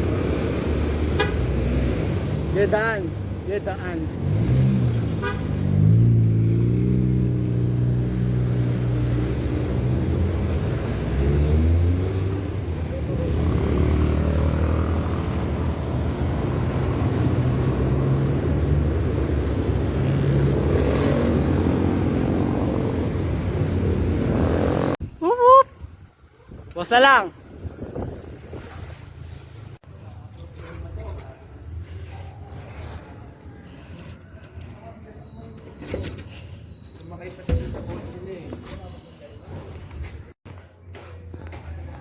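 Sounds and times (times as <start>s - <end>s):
vehicle engines accelerating: 0.0s - 25.0s.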